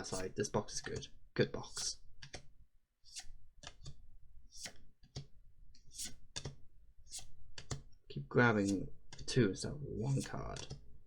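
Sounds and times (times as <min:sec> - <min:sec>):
cards flipped by hand: 0:03.1 - 0:05.3.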